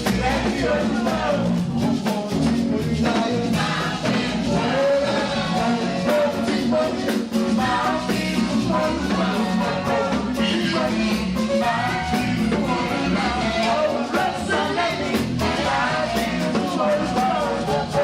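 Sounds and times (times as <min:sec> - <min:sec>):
band playing: 0:00.0 - 0:18.0
voices singing praise song: 0:00.0 - 0:18.0.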